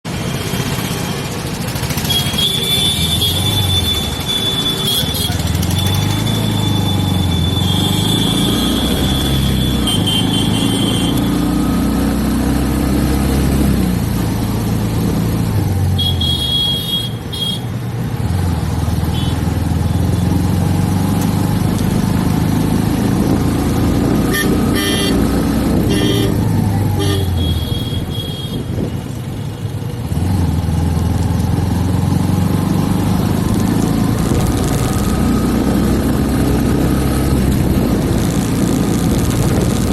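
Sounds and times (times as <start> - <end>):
road and wind noise: 0.0 - 39.9
motorcycle engine running: 0.1 - 39.9
vehicle horns tooting: 2.0 - 11.4, 16.0 - 17.7, 24.3 - 28.8.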